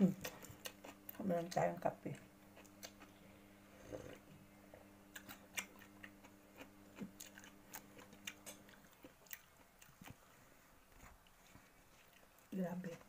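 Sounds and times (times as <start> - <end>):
low steady hum: 0.0 - 13.0
chewing and mouth clicks: 0.2 - 1.2, 2.5 - 3.2, 5.1 - 10.2, 11.0 - 13.0.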